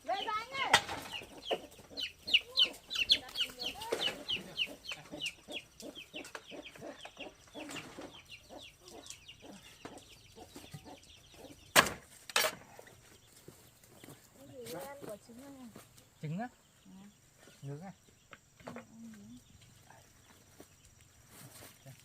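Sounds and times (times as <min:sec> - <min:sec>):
chickens calling: 0:00.0 - 0:22.0.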